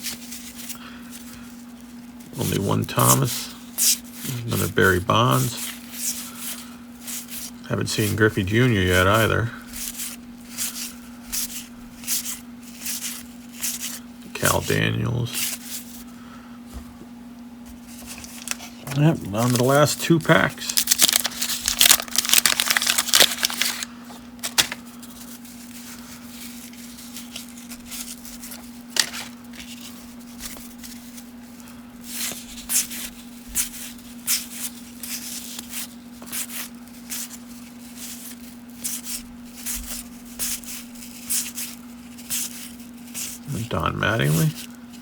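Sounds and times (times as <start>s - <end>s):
steady low hum: 0.0s - 45.0s
cards flicking and rustling: 17.7s - 43.5s
wrapper tearing and crinkling: 18.1s - 25.6s, 26.4s - 31.2s.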